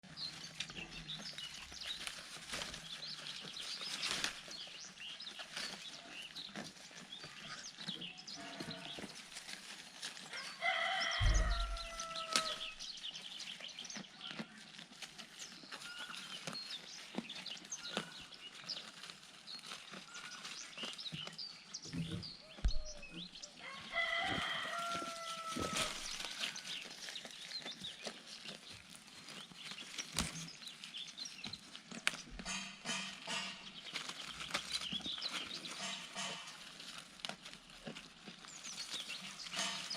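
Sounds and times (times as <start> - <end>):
chickens clucking: 9.7 - 12.8, 13.6 - 30.9, 31.5 - 39.9
rooster crowing: 10.4 - 12.8, 23.6 - 26.3.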